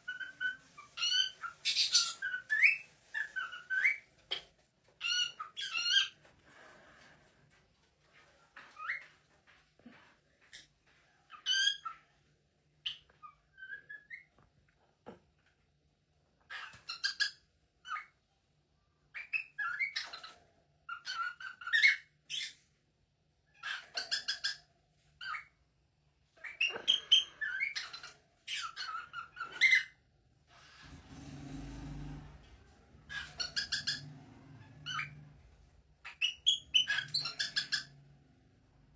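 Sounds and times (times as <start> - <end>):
parrot squawking and whistling: 33.1 - 34.0.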